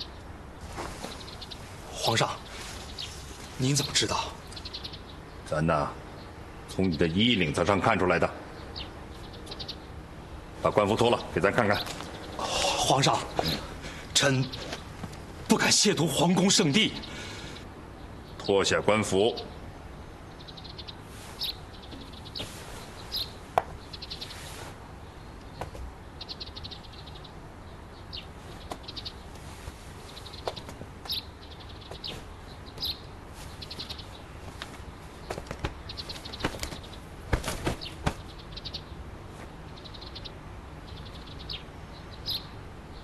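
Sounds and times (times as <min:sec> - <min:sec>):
low background hiss: 0:00.0 - 0:43.0
small birds chirping: 0:00.0 - 0:43.0
cloth rustling: 0:00.6 - 0:03.9, 0:21.1 - 0:24.8, 0:31.8 - 0:38.4.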